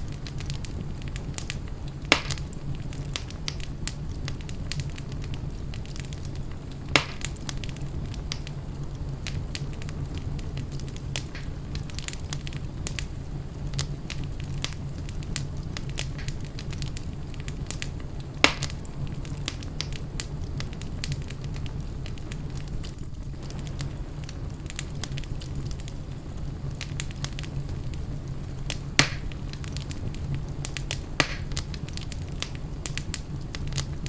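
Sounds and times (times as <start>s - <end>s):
wood fire crackling: 0.0s - 34.0s
loud sharp pops: 2.1s - 2.5s, 6.9s - 7.4s, 18.4s - 18.8s, 29.0s - 29.4s, 31.2s - 31.6s.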